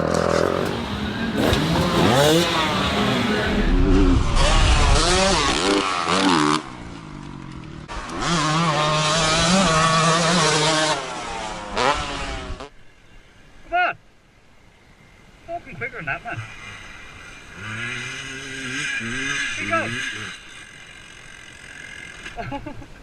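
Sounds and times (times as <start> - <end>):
dirt bike engines revving: 0.0 - 12.8, 15.7 - 23.0.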